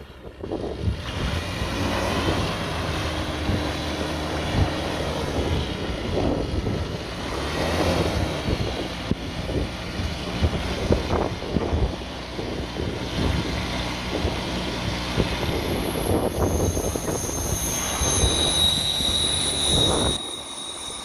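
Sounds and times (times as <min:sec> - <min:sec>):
wind buffeting microphone: 0:00.0 - 0:20.4
helicopter engine and rotor: 0:09.2 - 0:21.0.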